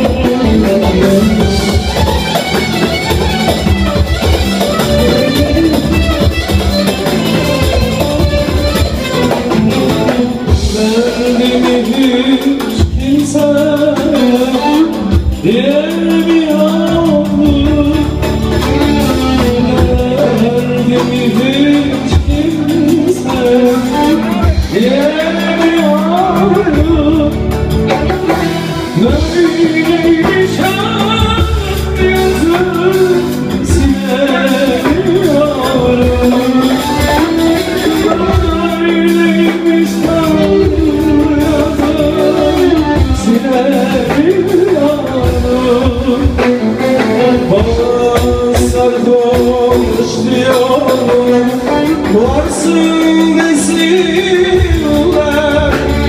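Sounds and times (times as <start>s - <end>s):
instrumental backing music: 0.0s - 56.0s
man singing: 0.0s - 56.0s.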